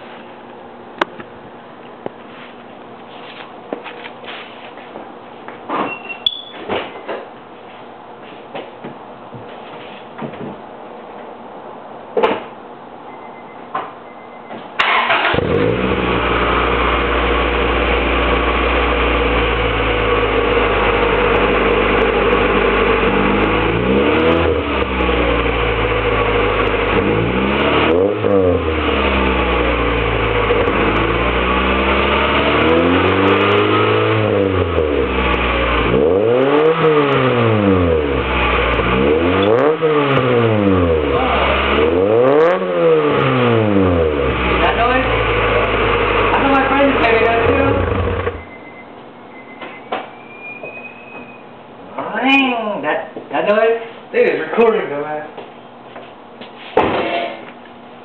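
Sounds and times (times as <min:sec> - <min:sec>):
car engine starting and revving: 0:14.8 - 0:48.5.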